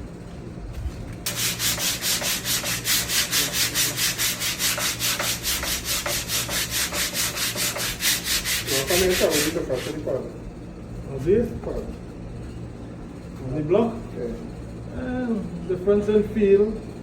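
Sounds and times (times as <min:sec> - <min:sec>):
sandpaper rubbing on filler: 0:01.3 - 0:10.2.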